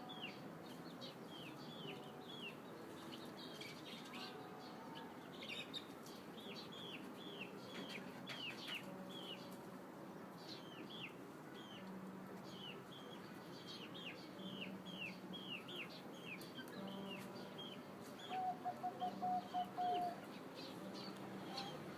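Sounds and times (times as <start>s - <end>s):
birds chirping: 10.3s - 21.9s.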